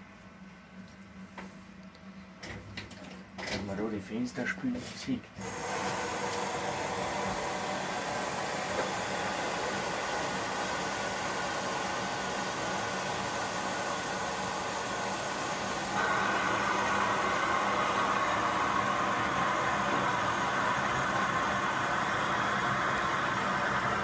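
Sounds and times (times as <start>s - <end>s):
washing machine running: 5.4s - 24.0s.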